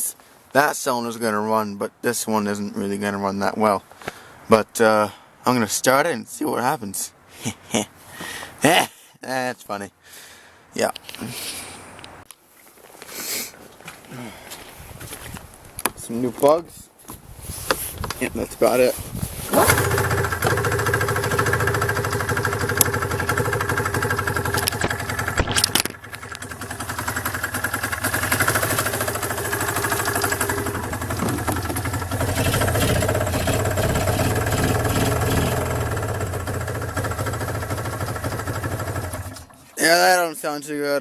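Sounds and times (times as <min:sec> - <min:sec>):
snowmobile engine running roughly: 0:19.5 - 0:39.5.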